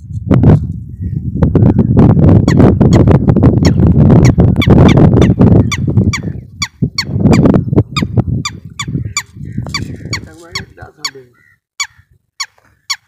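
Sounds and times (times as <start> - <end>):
wind buffeting microphone: 0.0 - 13.0
bird squeaky calls: 3.6 - 13.0.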